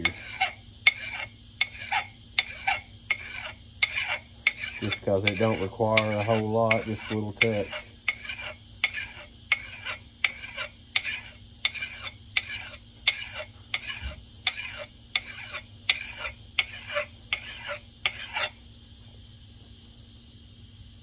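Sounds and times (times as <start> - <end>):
file rasping on steel: 0.0 - 18.6.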